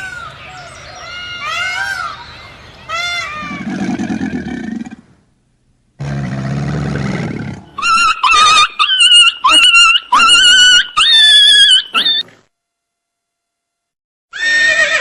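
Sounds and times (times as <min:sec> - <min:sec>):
animal grunting: 0:03.4 - 0:05.1
high-pitched animal calls: 0:07.8 - 0:12.3.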